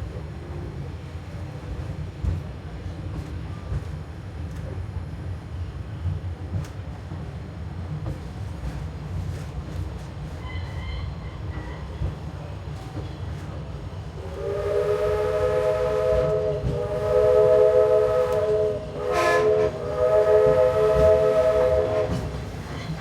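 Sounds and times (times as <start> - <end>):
moving train rumble: 0.0 - 23.0
steam locomotive whistle: 14.2 - 22.5.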